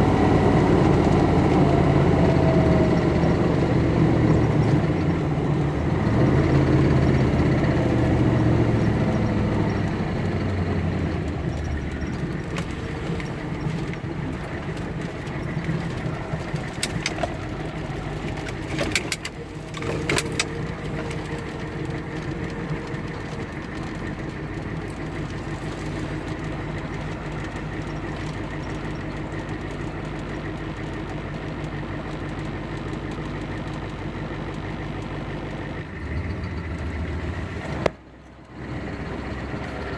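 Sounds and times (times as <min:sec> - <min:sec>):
car engine idling: 0:00.0 - 0:39.9
sharp clicks: 0:07.4 - 0:35.2.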